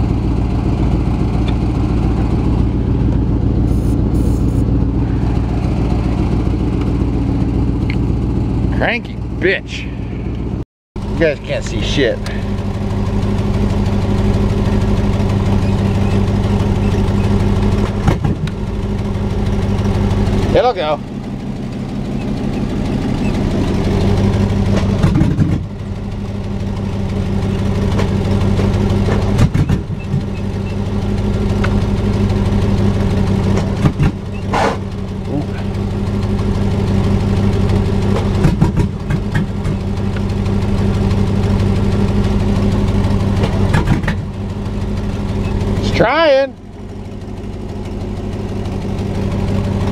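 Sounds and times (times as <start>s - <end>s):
engine idling loudly: 0.0s - 49.9s
engine blip: 27.4s - 32.2s.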